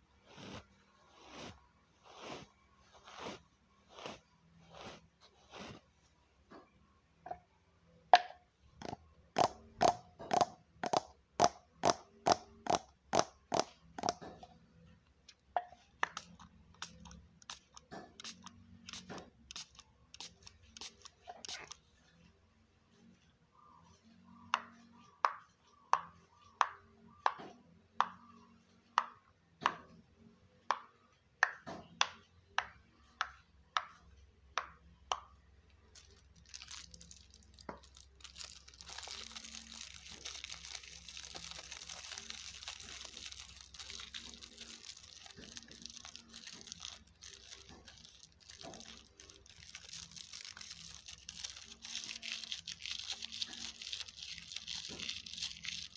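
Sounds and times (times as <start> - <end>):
crinkling rustle of handling: 35.9 - 55.9.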